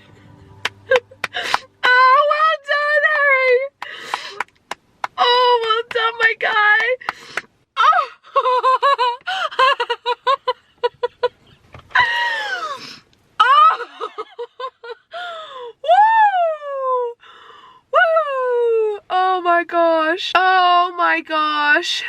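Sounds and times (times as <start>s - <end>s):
woman sobbing and laughing: 0.0s - 4.4s, 7.8s - 17.2s
woman wailing: 7.8s - 10.3s, 12.0s - 12.8s, 13.4s - 17.2s.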